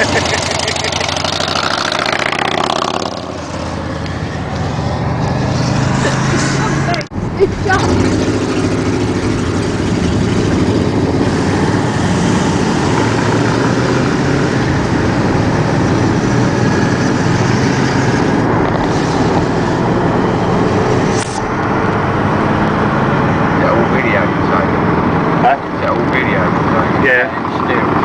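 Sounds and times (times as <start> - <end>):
motorcycle engine running: 0.0 - 28.0
wind rush on microphone: 9.1 - 23.6.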